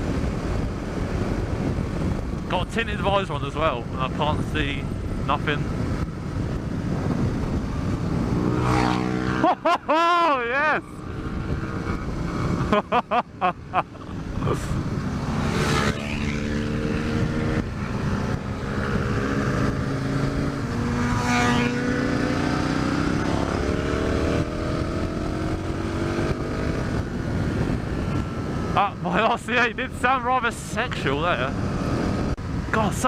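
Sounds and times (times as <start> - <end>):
wind rushing over microphone: 0.0 - 33.0
motorcycle engine accelerating: 3.9 - 29.7, 31.1 - 32.6.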